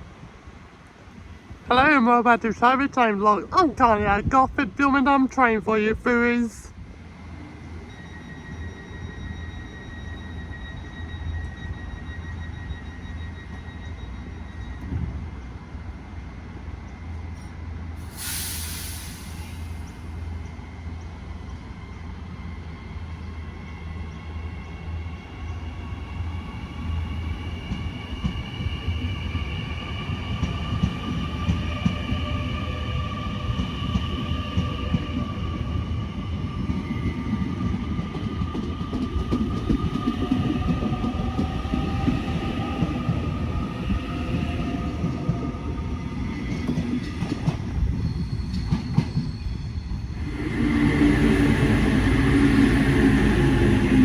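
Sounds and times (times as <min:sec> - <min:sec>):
train rumbling: 0:00.0 - 0:54.0
train wheel squeal: 0:07.2 - 0:16.2, 0:16.8 - 0:54.0
brief hiss: 0:18.0 - 0:20.2.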